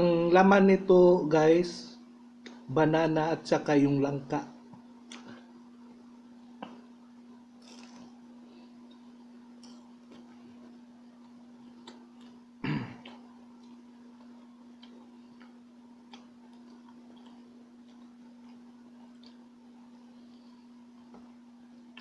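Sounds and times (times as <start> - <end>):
steady low hum: 0.0 - 22.0
chewing and mouth clicks: 7.6 - 8.1, 8.8 - 12.4, 13.0 - 19.6
loud bite: 7.6 - 8.2.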